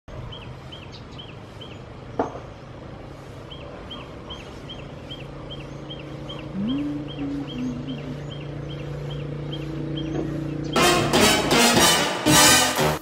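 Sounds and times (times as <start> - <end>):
bird chirping call: 0.2 - 2.6, 3.4 - 11.0
low hum: 2.6 - 11.8.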